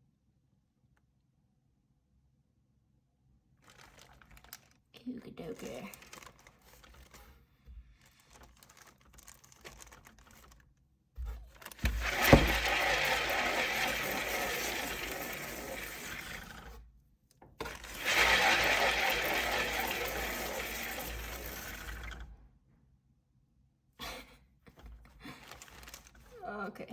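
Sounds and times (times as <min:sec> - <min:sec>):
plastic turntable spinning: 0:11.5 - 0:16.8, 0:17.6 - 0:22.4.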